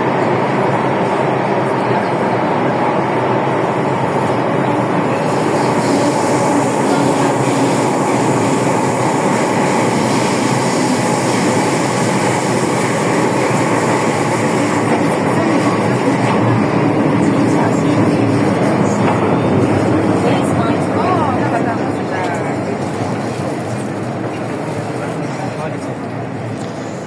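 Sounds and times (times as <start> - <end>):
metro train rumbling in tunnel: 0.0 - 27.0.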